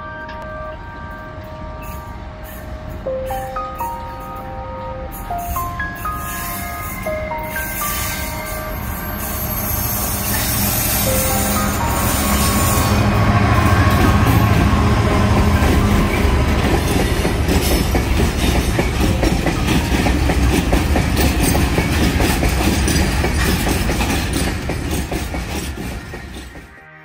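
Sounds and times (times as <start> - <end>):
diesel locomotive engine hum: 0.0 - 27.0
wagon wheels clacking over rail joints: 13.4 - 26.7.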